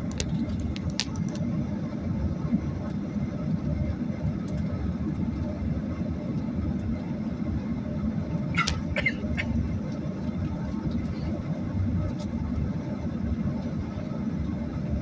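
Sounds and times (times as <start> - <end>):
jet cabin rumble: 0.0 - 15.0.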